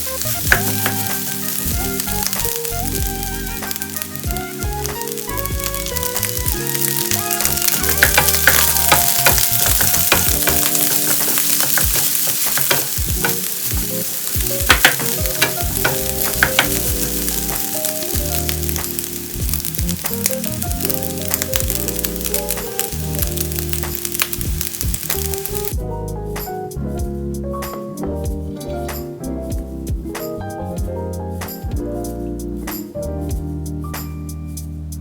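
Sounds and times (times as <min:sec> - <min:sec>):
fried rice sizzling in a pan: 0:00.0 - 0:25.8
soft background music: 0:00.0 - 0:35.0
spatula clicking against pan: 0:07.0 - 0:13.7, 0:14.7 - 0:20.2.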